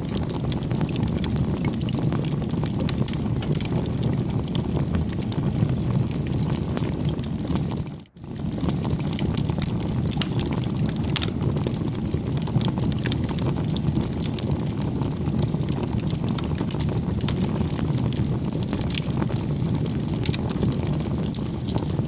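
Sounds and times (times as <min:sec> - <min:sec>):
low rumble of bonfire: 0:00.0 - 0:22.0
wood popping and snapping: 0:02.9 - 0:05.4, 0:09.0 - 0:11.4.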